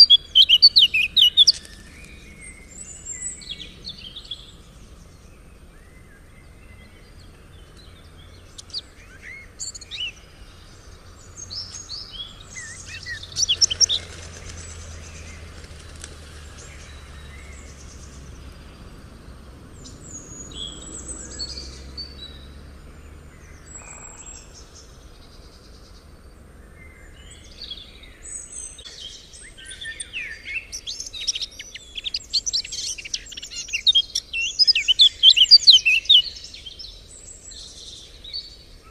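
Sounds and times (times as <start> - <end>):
songbirds chirping and trilling: 0.0 - 38.9
faint background rumble: 0.1 - 29.8.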